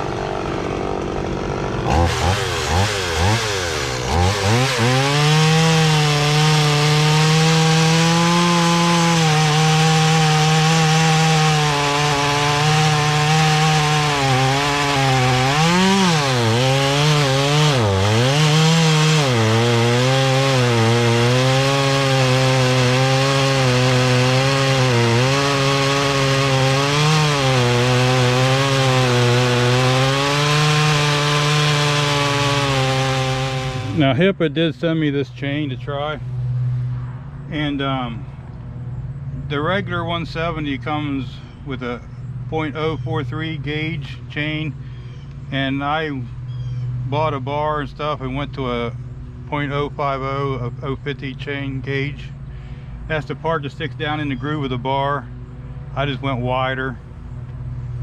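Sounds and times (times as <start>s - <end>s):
chainsaw cutting wood: 0.0s - 34.2s.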